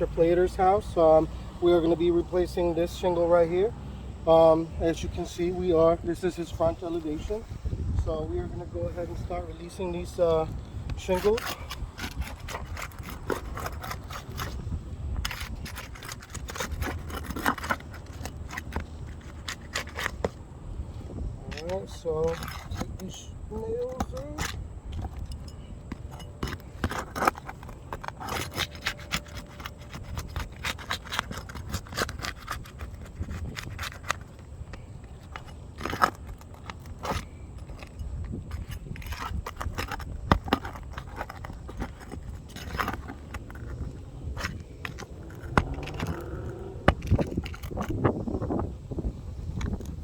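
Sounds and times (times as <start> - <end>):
metal tool scraping shingles: 9.9 - 20.5, 21.5 - 48.6
roofing nails prying loose: 10.9 - 14.6, 23.8 - 48.0.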